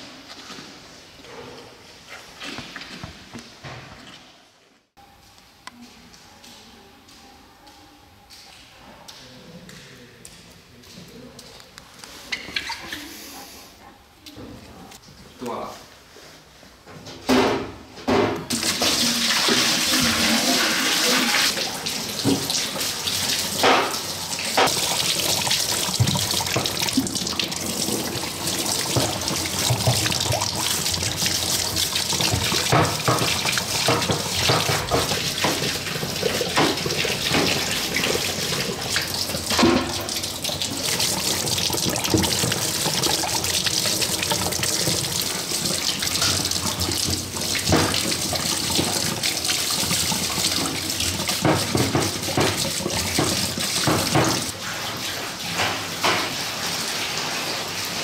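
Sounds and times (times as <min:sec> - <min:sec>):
tap water running into sink: 0:18.5 - 0:57.3.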